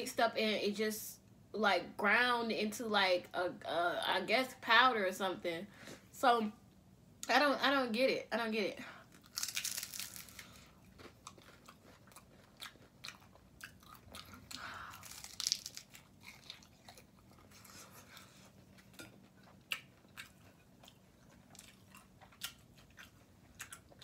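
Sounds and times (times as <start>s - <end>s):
person chewing: 9.1s - 24.0s
crunchy bite: 9.2s - 17.7s.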